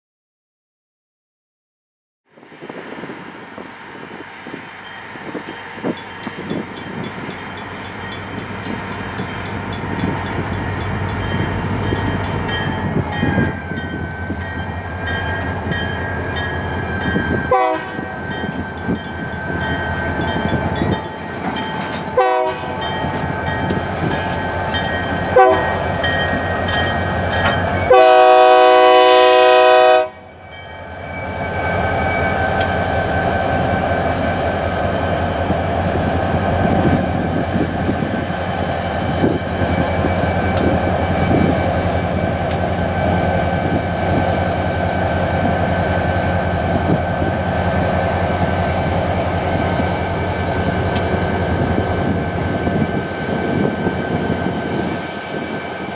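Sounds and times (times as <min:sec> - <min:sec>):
crossing bell ringing: 0:02.7 - 0:55.9
train horn blasts: 0:17.5 - 0:18.2, 0:22.1 - 0:22.8, 0:25.3 - 0:25.8, 0:27.8 - 0:30.3.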